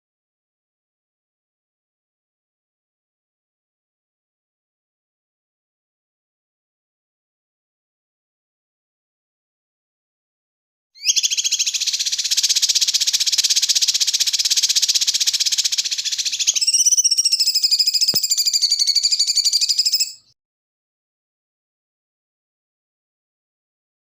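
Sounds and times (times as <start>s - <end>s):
songbird trilling: 11.0s - 20.3s.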